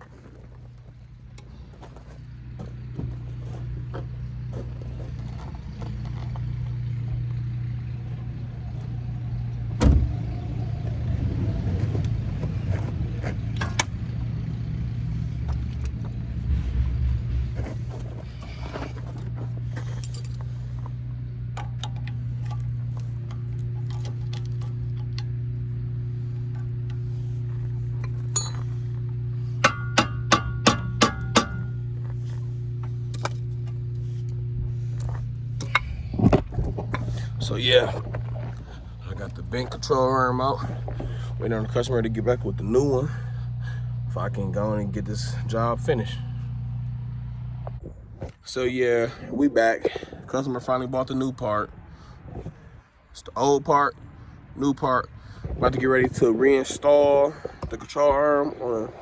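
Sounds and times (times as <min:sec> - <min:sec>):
steady low hum: 0:00.0 - 0:59.0
hand tools clanking on metal: 0:18.2 - 0:20.8, 0:27.9 - 0:32.0, 0:35.6 - 0:38.5
quick metallic clinks: 0:28.0 - 0:28.9.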